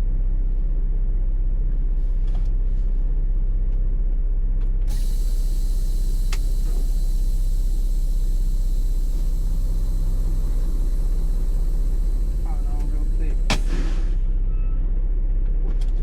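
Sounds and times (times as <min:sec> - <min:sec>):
diesel truck engine idling: 0:00.0 - 0:16.0
short sharp sound: 0:04.9 - 0:14.3.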